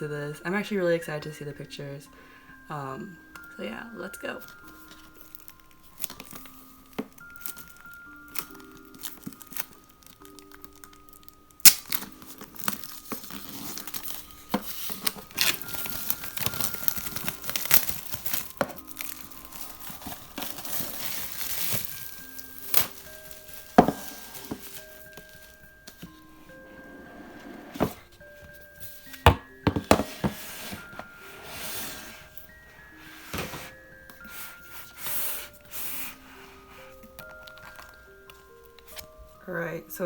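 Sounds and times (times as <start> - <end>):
soft background music: 0.0 - 40.0
packaging crinkling and tearing: 4.5 - 26.2.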